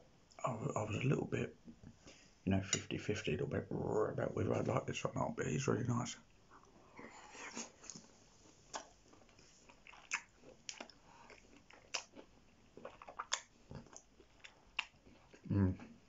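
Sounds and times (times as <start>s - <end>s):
person chewing: 6.6s - 16.0s.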